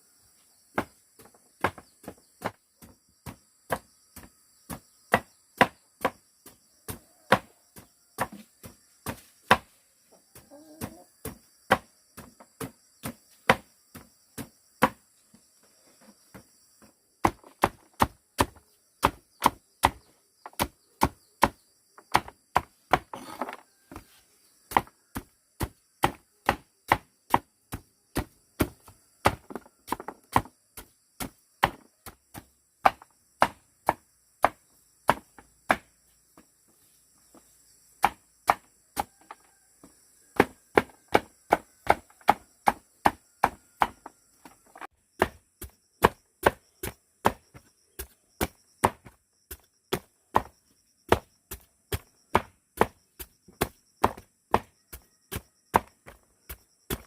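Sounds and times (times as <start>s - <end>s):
knife chopping on a board: 1.6s - 6.2s, 6.9s - 7.5s, 24.7s - 35.8s, 38.0s - 39.1s, 40.4s - 44.1s, 45.2s - 57.0s.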